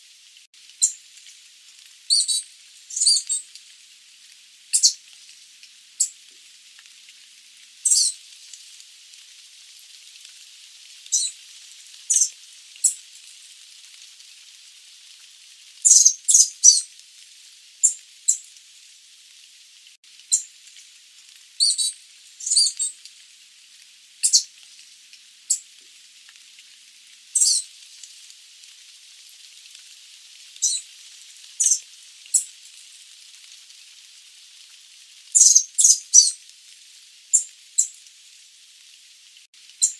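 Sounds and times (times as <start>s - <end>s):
faint steady hiss: 0.0s - 39.9s
bird giving high-pitched calls: 2.1s - 3.4s, 4.8s - 5.0s, 7.9s - 8.2s, 12.1s - 13.0s, 15.9s - 16.8s, 21.6s - 22.9s, 24.2s - 24.5s, 27.4s - 27.6s, 30.6s - 30.8s, 35.4s - 36.4s.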